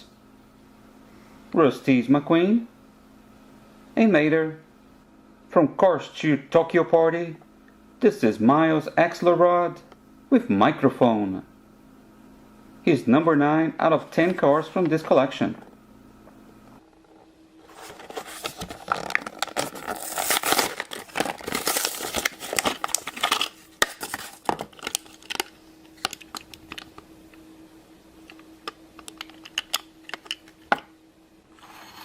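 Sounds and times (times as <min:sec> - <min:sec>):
plastic packaging crinkling: 0:17.6 - 0:27.0.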